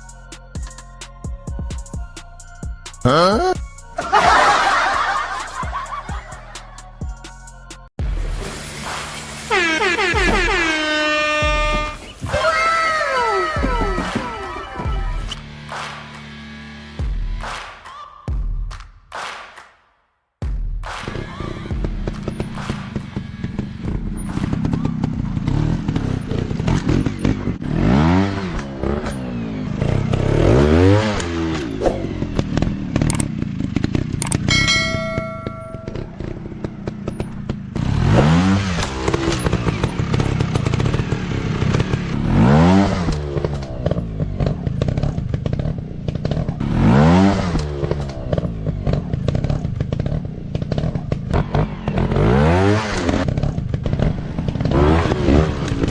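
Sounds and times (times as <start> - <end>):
motorcycle engines revving: 3.0 - 6.9, 8.2 - 17.5, 21.0 - 55.9
bikes knocking on rough ground: 9.5 - 15.3, 43.0 - 46.7, 47.4 - 51.6
steady high tone: 34.5 - 36.3.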